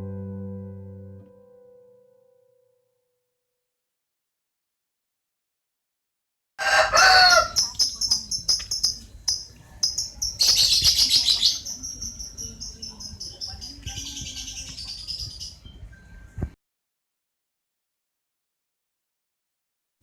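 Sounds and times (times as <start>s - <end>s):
birds chirping: 6.6s - 16.4s.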